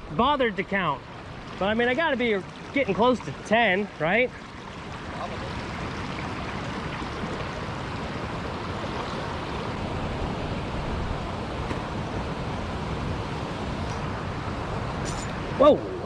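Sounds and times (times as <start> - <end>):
water rushing from spillway: 0.0 - 16.0.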